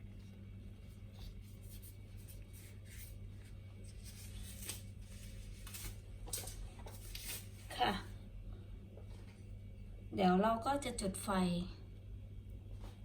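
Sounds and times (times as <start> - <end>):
low electrical hum: 0.0 - 13.0
herbs rustling: 0.9 - 7.8.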